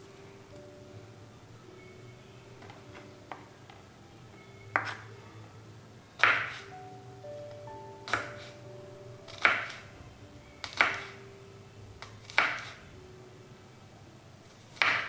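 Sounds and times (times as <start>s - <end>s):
faint soft music: 0.0s - 15.0s
knife chopping on cutting board: 4.7s - 5.0s, 6.2s - 6.7s, 8.1s - 8.6s, 9.3s - 9.8s, 10.6s - 11.1s, 12.2s - 12.8s, 14.8s - 15.0s.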